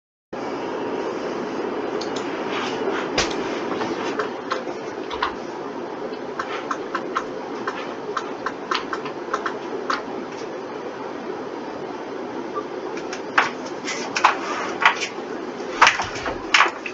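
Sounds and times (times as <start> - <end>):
steady low hum: 0.4 - 16.9
mouse and keyboard clicking: 6.4 - 10.0.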